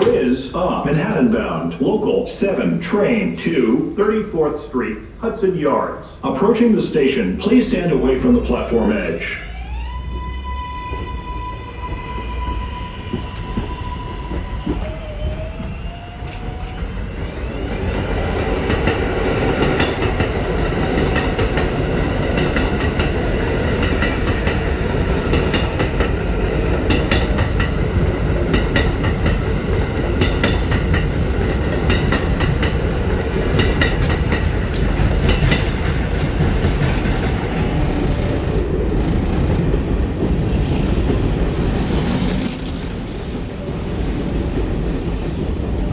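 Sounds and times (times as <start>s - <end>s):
subway train rumbling past: 0.0s - 45.9s
wheels clattering over rail joints: 18.1s - 45.9s.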